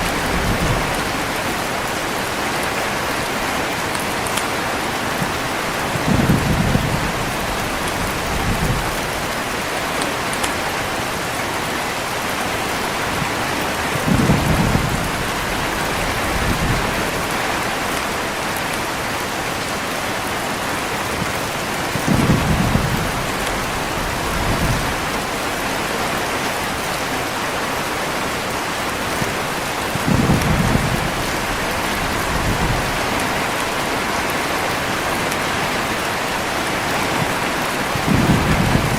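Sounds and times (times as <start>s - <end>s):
low rolls of thunder: 0.0s - 1.4s, 5.9s - 9.1s, 13.9s - 17.2s, 22.0s - 25.2s, 29.9s - 33.4s, 38.0s - 38.9s
heavy rain falling: 0.0s - 38.9s.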